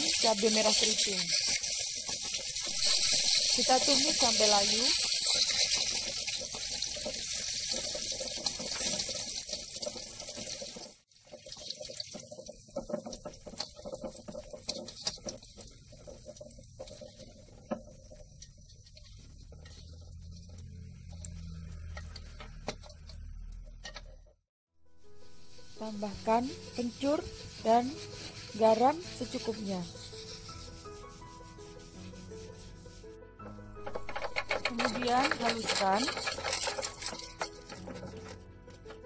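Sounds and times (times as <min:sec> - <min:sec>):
oil crackling and popping: 0:00.0 - 0:24.4, 0:33.8 - 0:39.0
garlic and chilies sizzling in oil: 0:00.0 - 0:39.0.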